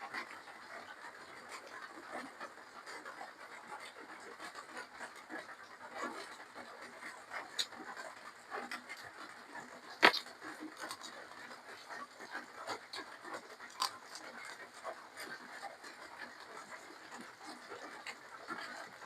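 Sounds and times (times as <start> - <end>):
person chewing and smacking: 10.0 - 11.1, 13.7 - 14.5.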